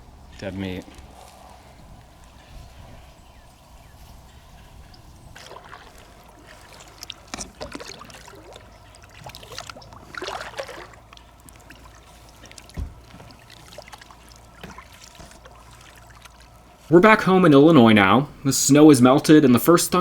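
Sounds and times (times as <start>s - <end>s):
water trickling and splashing: 0.0s - 20.0s
dull thump: 12.8s - 13.3s.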